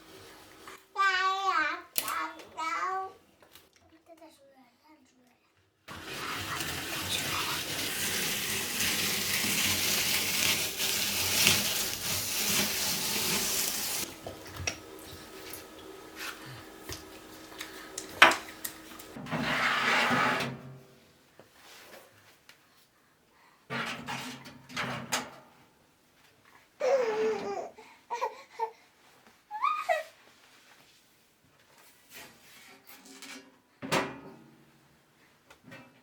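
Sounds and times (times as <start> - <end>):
water running from tap: 5.9 - 16.1.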